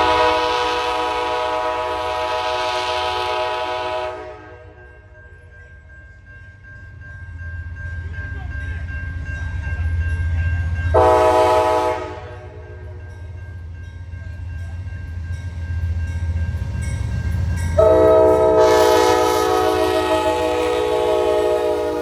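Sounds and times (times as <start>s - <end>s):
train air horn blast: 0.0s - 4.8s, 11.0s - 12.6s, 17.8s - 22.0s
diesel locomotive rumbling: 0.0s - 22.0s.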